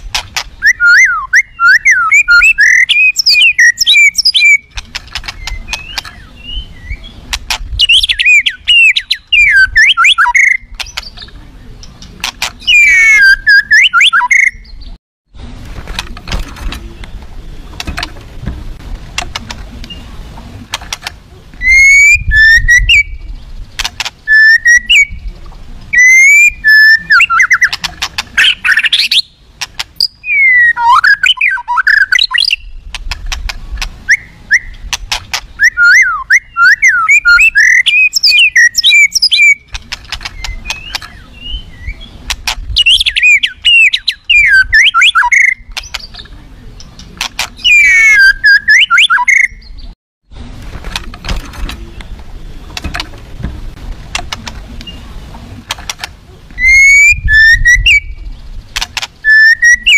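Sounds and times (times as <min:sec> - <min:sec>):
songbird whistling song: 0:00.0 - 0:15.0, 0:19.8 - 0:20.1, 0:21.6 - 0:25.3, 0:25.9 - 0:29.4, 0:30.0 - 0:32.9, 0:34.0 - 0:50.0, 0:54.8 - 0:55.1, 0:56.6 - 0:59.9
bird sharp clicks: 0:02.1 - 0:06.3, 0:07.3 - 0:14.6, 0:23.8 - 0:25.1, 0:26.0 - 0:41.3, 0:42.3 - 0:49.5, 0:55.6 - 0:59.9.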